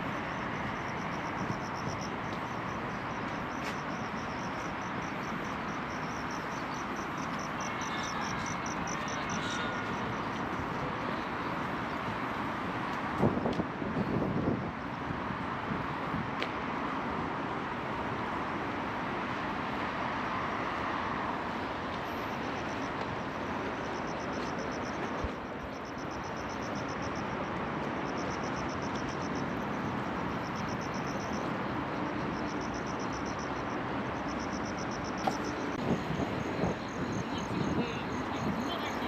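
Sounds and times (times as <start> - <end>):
insects chirping in trills: 0.0 - 12.1, 22.0 - 39.0
city traffic hum: 0.0 - 39.0.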